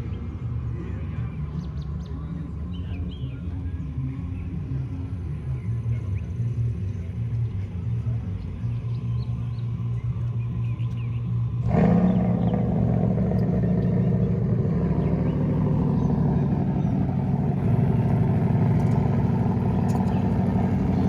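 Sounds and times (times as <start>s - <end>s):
car engine running: 6.8s - 21.0s.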